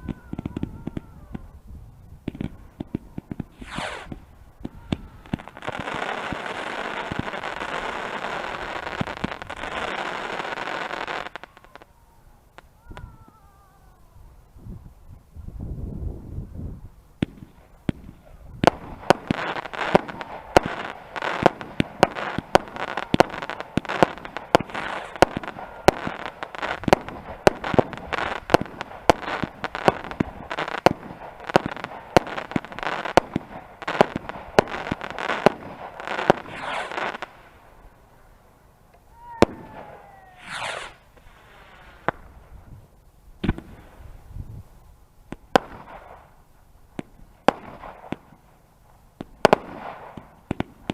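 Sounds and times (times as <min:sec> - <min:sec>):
fireworks bangs and crackles: 0:00.0 - 0:13.8, 0:16.9 - 0:38.0, 0:39.0 - 0:50.9
firework whistle: 0:02.8 - 0:08.9, 0:33.9 - 0:37.3, 0:39.1 - 0:42.2.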